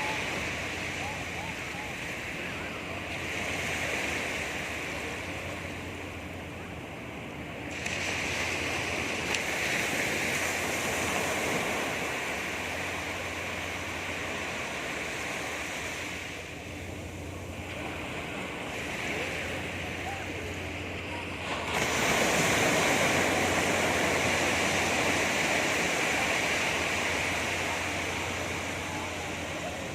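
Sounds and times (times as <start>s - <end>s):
sea waves breaking on beach: 0.0s - 29.9s.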